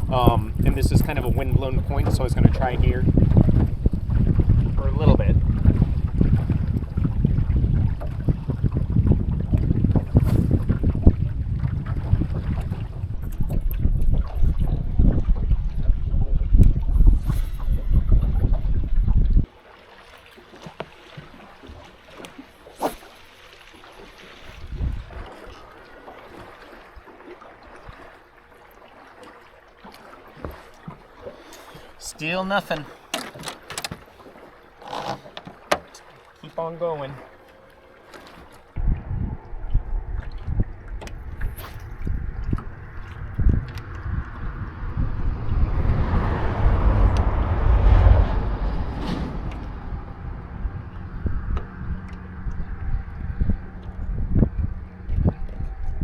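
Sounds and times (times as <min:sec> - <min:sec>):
water lapping against boat hull: 0:00.0 - 0:56.0
wind: 0:00.0 - 0:56.0
low thump: 0:44.6 - 0:52.4.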